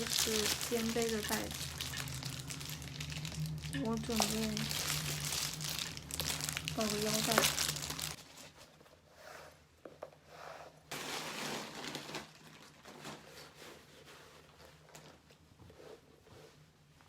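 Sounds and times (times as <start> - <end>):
fabric bag rustling: 0.0 - 8.8, 10.9 - 14.8.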